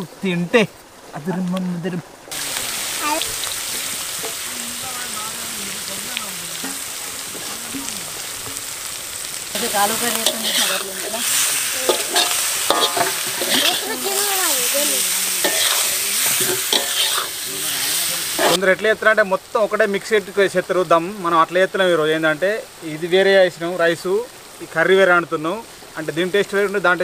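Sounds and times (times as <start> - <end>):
curry sizzling in a pan: 0.0 - 27.0
metal spatula scraping a pan: 6.6 - 8.7, 9.6 - 18.6.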